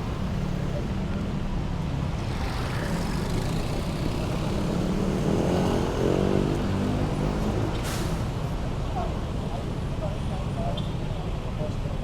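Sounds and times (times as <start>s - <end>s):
vehicle engines droning: 0.0s - 10.4s
engine speeding up close by: 2.2s - 7.8s.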